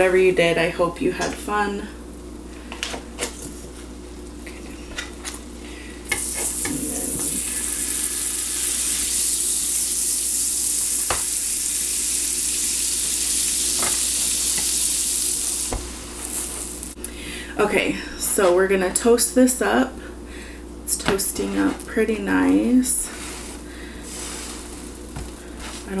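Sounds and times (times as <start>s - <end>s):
butter sizzling: 5.2s - 17.5s, 21.1s - 26.0s.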